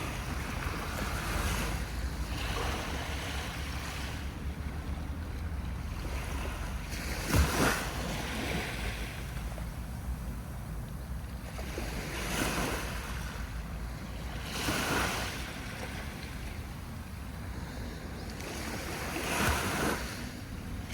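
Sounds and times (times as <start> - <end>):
sea waves breaking on a beach: 0.0 - 20.9
steady low rumble: 7.9 - 11.6.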